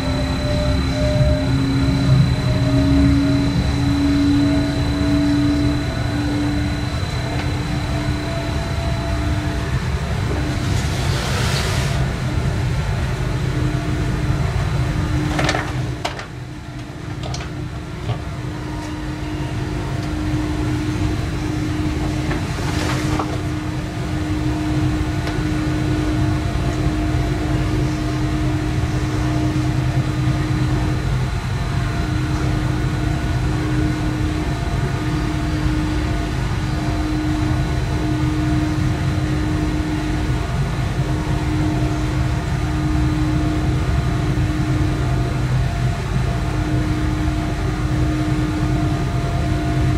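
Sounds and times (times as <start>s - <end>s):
electric hum: 0.0s - 49.9s
train wheels rumbling on track: 0.0s - 49.9s.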